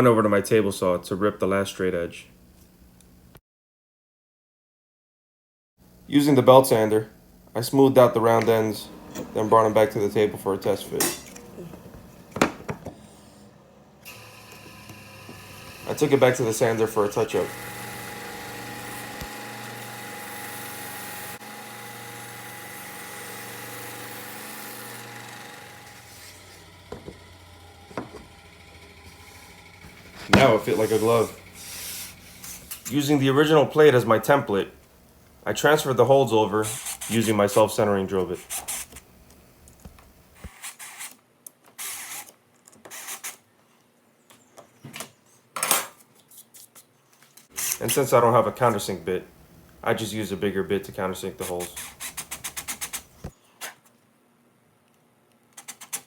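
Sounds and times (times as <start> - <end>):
belt sander motor humming: 8.4 - 32.8
drill boring into plywood: 14.0 - 31.7.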